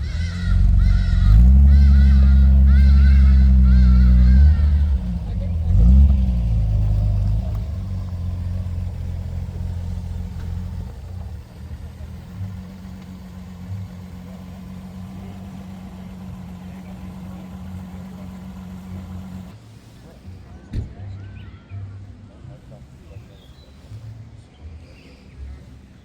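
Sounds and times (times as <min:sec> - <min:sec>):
car engine idling: 0:00.0 - 0:20.7.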